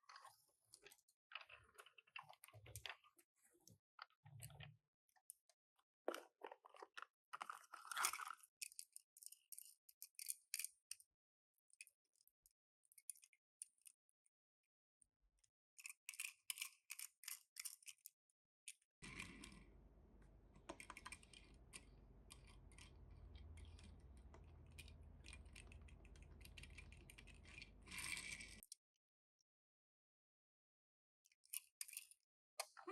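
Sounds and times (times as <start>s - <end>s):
toy packaging clicks and rustles: 6.2s - 10.8s
low steady hum: 19.0s - 28.6s.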